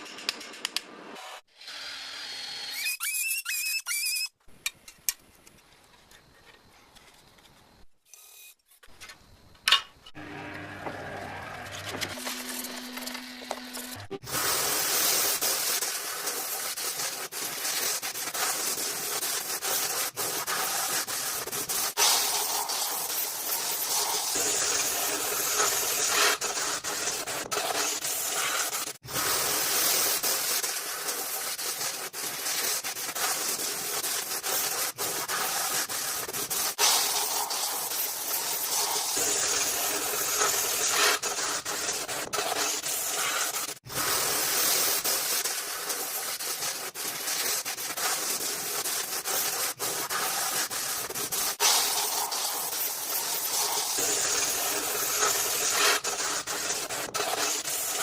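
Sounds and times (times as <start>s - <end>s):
abrasive hissing on surface: 14.2s - 58.0s.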